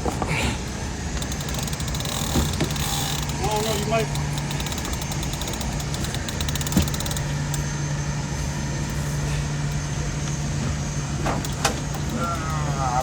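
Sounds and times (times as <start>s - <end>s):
boat motor idling: 0.0s - 13.0s
fine clicks: 1.2s - 7.7s.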